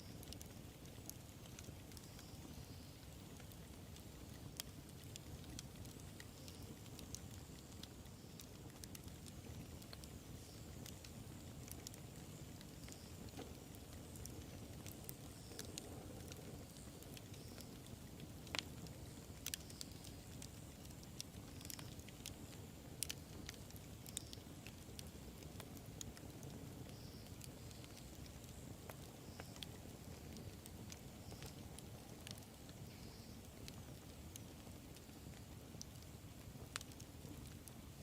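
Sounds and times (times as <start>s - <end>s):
wood fire crackling and popping: 0.0s - 38.0s.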